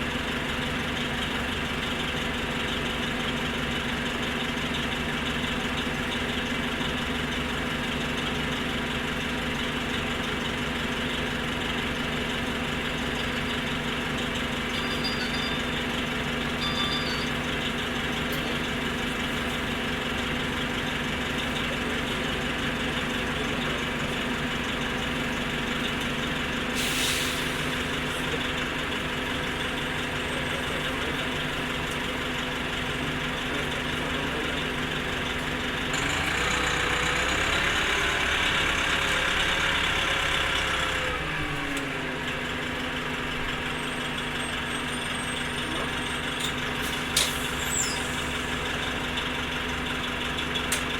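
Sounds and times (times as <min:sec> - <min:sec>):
bus diesel engine running: 0:00.0 - 0:50.9
air hiss: 0:26.8 - 0:27.8.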